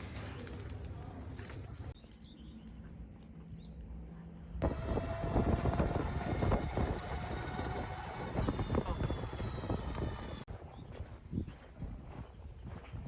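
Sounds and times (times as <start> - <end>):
scooter engine running: 4.6 - 10.5
wind noise on microphone: 4.6 - 13.0.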